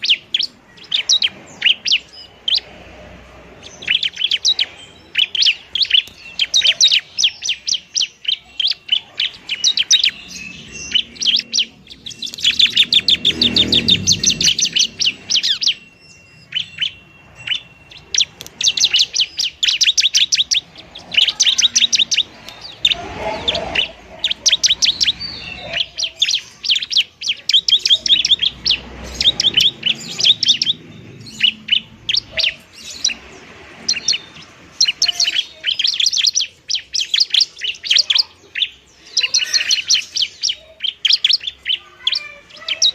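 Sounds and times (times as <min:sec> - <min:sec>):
bird singing rapid high chirps: 0:00.0 - 0:42.9
low rumbles: 0:10.1 - 0:19.6.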